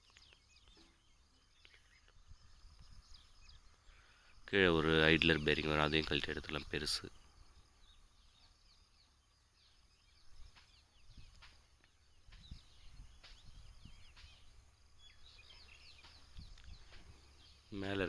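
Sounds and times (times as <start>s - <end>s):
faint bird chirping: 0.0s - 18.0s.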